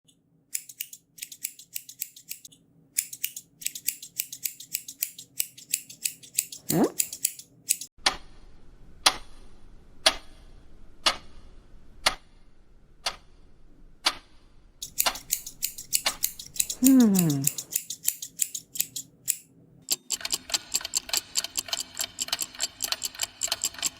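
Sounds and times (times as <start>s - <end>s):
scissors snipping: 0.6s - 7.9s, 14.8s - 19.4s
clock ticking: 14.8s - 23.9s.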